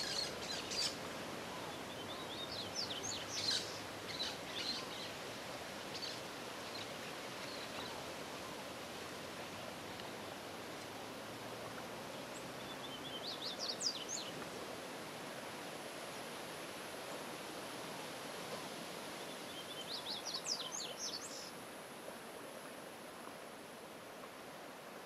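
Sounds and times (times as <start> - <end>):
songbird singing: 0.0 - 8.7, 9.4 - 14.6, 19.1 - 21.6
steady outdoor hiss: 0.0 - 25.0.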